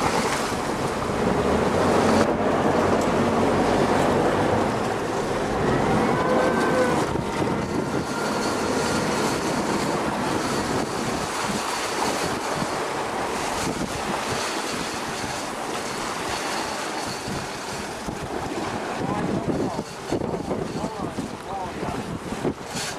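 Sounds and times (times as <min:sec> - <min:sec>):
boat engine and water rush: 0:00.0 - 0:22.9
wind buffeting microphone: 0:00.0 - 0:22.9.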